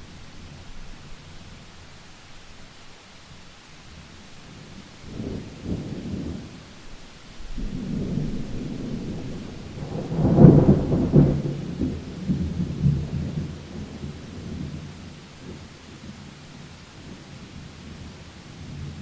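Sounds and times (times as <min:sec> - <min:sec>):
faint steady rain: 0:00.0 - 0:19.0
thunder rumbling: 0:07.4 - 0:15.6.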